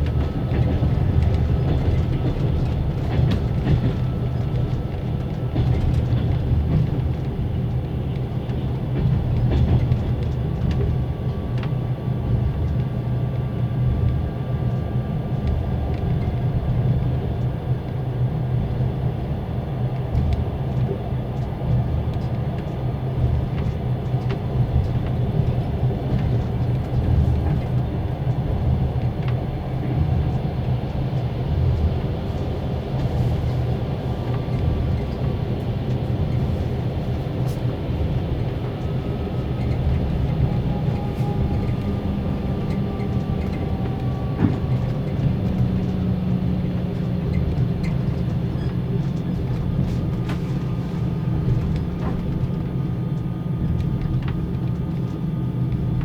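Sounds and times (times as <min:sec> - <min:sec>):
train wheels rumbling: 0:00.0 - 0:56.0.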